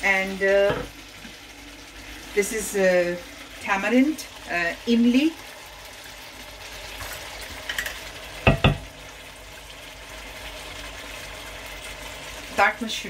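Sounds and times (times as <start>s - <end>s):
curry sizzling in a wok: 0.0s - 13.0s.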